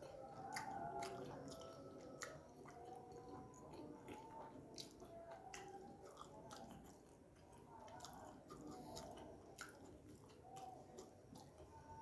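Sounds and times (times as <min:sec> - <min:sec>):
mouth and teeth clicks: 0:00.0 - 0:12.0
person chewing food: 0:00.0 - 0:12.0.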